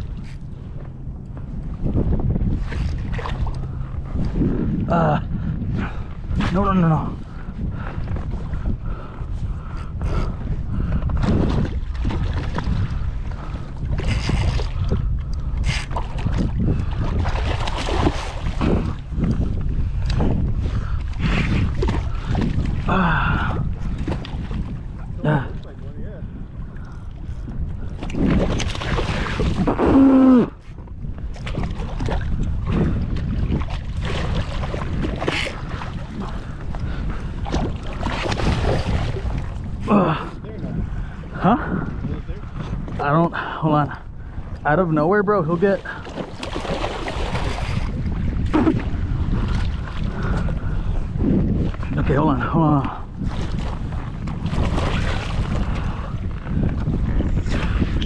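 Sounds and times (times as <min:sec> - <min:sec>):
wind buffeting microphone: 0:00.0 - 0:58.0
water splashing: 0:15.6 - 0:25.6, 0:28.0 - 0:30.6, 0:31.4 - 0:40.6, 0:45.4 - 0:50.8, 0:53.2 - 0:56.2.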